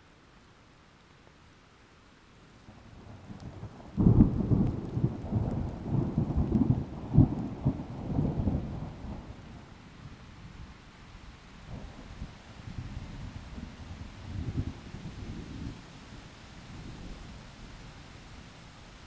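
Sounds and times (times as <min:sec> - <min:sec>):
rain: 0:00.0 - 0:19.0
thunder rumbling: 0:03.8 - 0:09.0.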